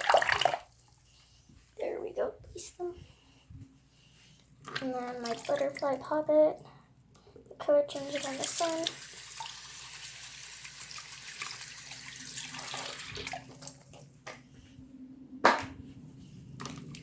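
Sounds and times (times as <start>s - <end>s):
tap water running into sink: 8.0s - 13.8s.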